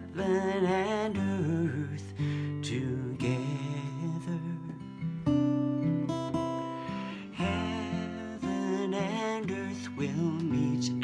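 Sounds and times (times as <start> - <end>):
acoustic guitar strumming: 0.0 - 11.0
person singing: 7.0 - 11.0.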